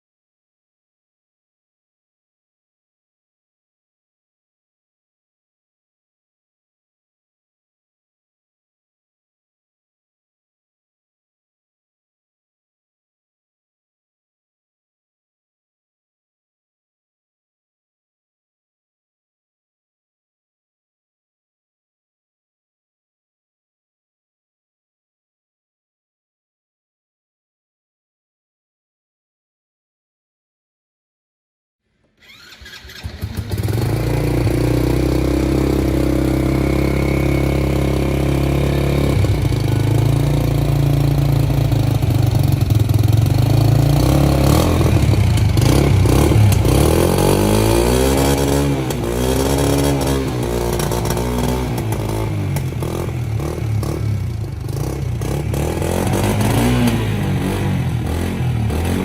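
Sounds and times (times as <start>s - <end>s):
motorcycle engine revving: 32.2s - 59.0s
motorcycle engine starting and idling: 32.2s - 59.0s.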